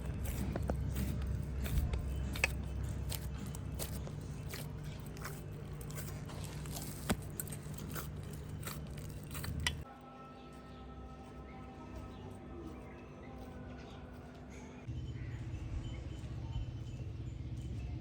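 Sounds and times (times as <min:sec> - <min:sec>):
person chewing food: 0:00.0 - 0:09.9
steady low hum: 0:00.0 - 0:18.0.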